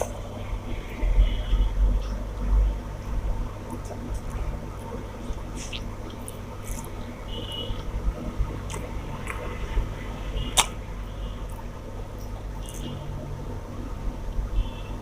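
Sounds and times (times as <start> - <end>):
steady low hum: 0.0 - 15.0
person chewing food: 3.7 - 9.8, 10.5 - 10.8, 11.4 - 13.0.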